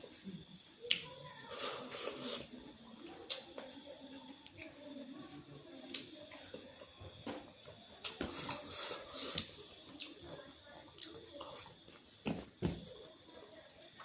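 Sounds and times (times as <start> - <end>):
chewing with wet clicks: 3.2 - 4.8, 5.8 - 6.9, 9.3 - 10.2, 10.9 - 11.7.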